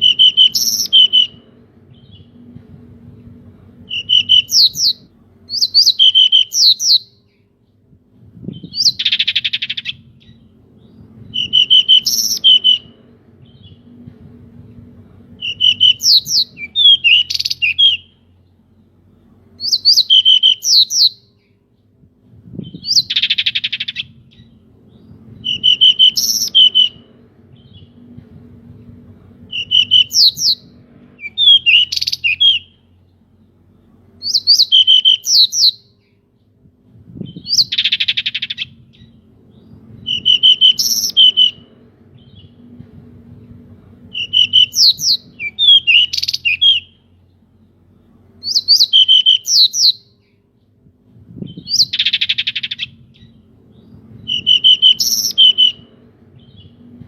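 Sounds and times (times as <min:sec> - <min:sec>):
bird whistled song: 0:00.0 - 0:02.4, 0:03.9 - 0:07.4, 0:08.4 - 0:13.9, 0:15.4 - 0:18.2, 0:19.6 - 0:21.6, 0:22.6 - 0:28.0, 0:29.5 - 0:32.9, 0:34.2 - 0:36.2, 0:37.2 - 0:42.6, 0:44.1 - 0:47.1, 0:48.4 - 0:50.4, 0:51.4 - 0:56.8.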